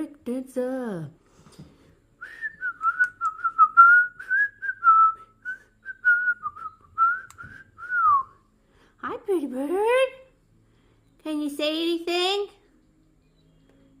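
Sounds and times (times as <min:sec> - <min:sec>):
person whistling a tune: 0:02.2 - 0:08.4.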